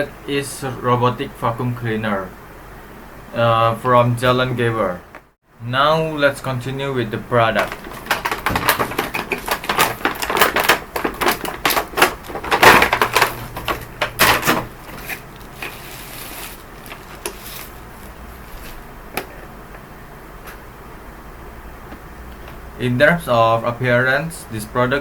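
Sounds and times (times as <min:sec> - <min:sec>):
objects clattering and knocking: 0:07.6 - 0:19.4.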